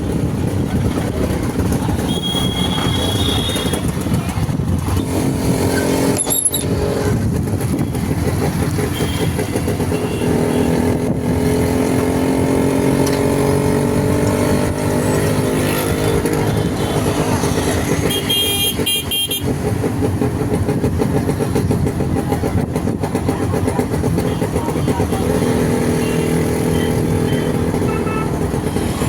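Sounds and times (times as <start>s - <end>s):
motorcycle engine running: 0.0s - 29.0s
road and wind noise: 0.0s - 29.0s
vehicle horn toots: 1.9s - 4.1s, 8.8s - 10.8s, 18.0s - 19.5s, 26.0s - 28.5s.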